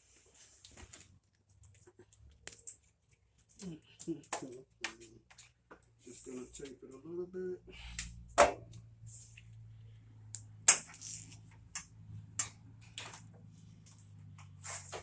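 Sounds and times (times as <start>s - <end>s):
tape ripping off a roll: 10.7s - 11.6s, 13.9s - 15.0s.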